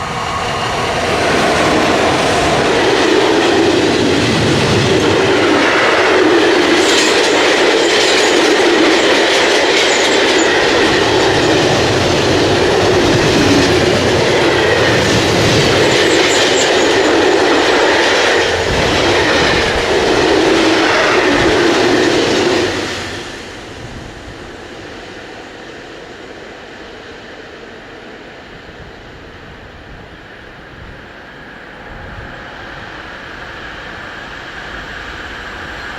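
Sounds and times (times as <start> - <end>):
clickety-clack over rail joints: 0.0 - 24.0
train wheels rumbling on rails: 0.0 - 35.9.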